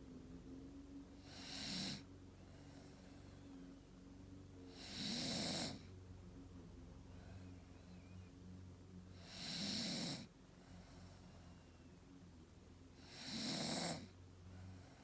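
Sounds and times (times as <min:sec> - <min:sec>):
steady low hum: 0:00.0 - 0:15.0
dog snoring: 0:01.2 - 0:02.1, 0:04.7 - 0:05.9, 0:09.1 - 0:11.3, 0:13.0 - 0:15.0.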